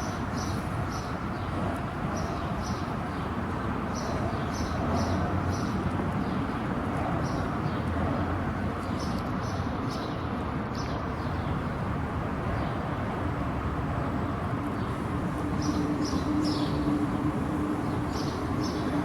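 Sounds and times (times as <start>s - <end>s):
small birds chirping: 14.7s - 19.0s.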